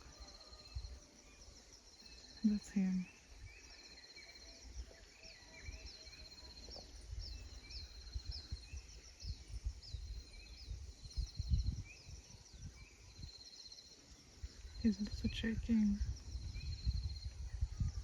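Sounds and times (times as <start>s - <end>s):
birds chirping and trilling: 0.0s - 18.0s
low rumbles on microphone: 6.6s - 12.8s, 14.7s - 18.0s.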